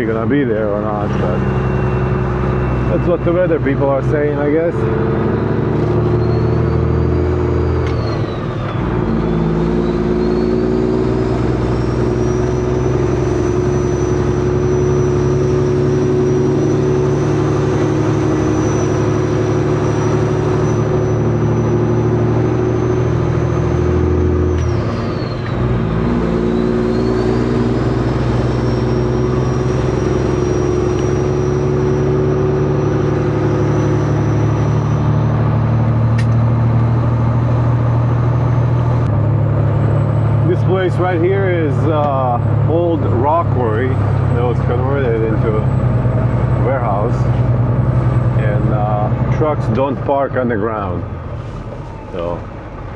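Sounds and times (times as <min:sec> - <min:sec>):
high whine: 0:00.0 - 0:23.7
truck diesel engine accelerating: 0:00.0 - 0:52.9.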